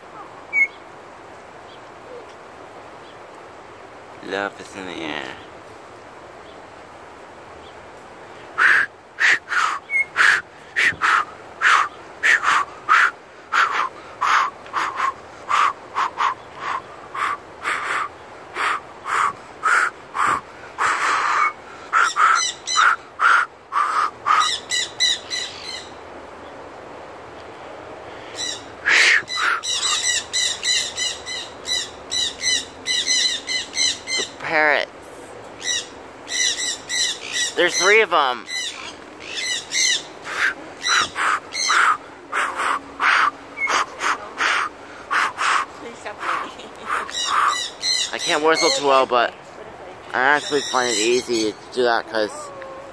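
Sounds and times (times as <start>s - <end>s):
birds calling short notes: 8.5s - 26.0s, 35.6s - 49.3s, 50.1s - 52.8s
rapid bird chattering trill: 8.6s - 25.9s, 28.4s - 34.4s, 35.6s - 49.1s, 50.3s - 51.8s.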